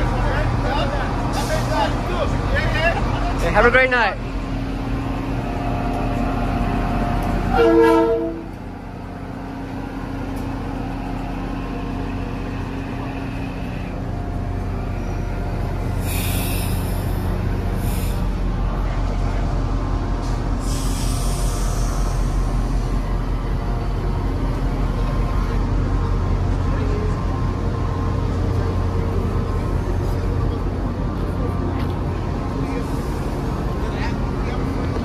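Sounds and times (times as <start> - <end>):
low hum of train: 0.0 - 35.0
train horn blast: 7.5 - 8.6
high hissing: 16.0 - 18.3.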